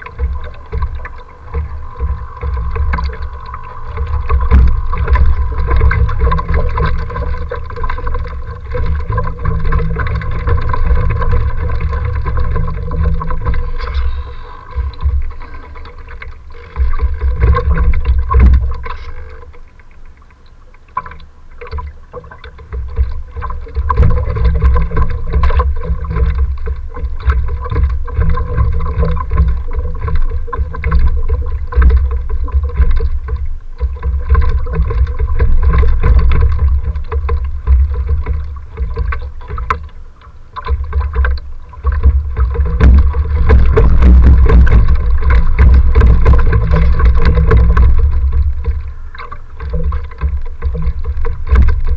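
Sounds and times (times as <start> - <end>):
gusty wind buffeting microphone: 0.0 - 18.6, 42.0 - 49.1
faint steady hum: 0.0 - 51.9.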